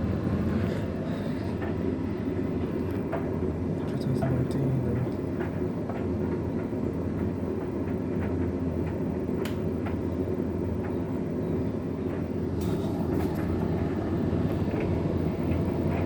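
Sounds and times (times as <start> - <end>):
tumble dryer rumbling hum: 0.0 - 16.0
clicks and taps of tumbling load: 2.7 - 11.2.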